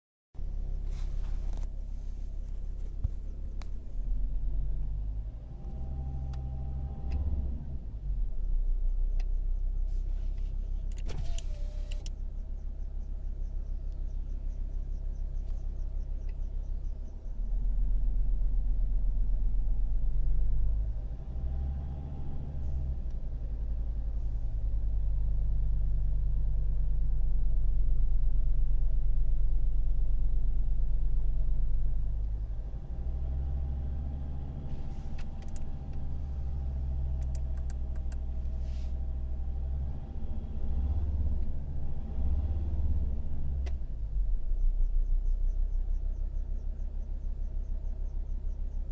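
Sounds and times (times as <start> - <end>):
diesel engine running: 0.4 - 48.9
bird-like chirping from engine: 11.6 - 17.9, 44.5 - 48.9.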